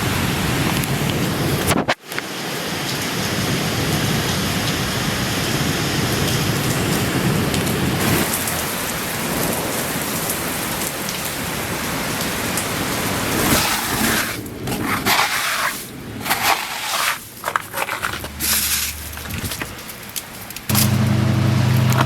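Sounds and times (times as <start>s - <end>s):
heavy hail and rain: 0.0s - 22.0s.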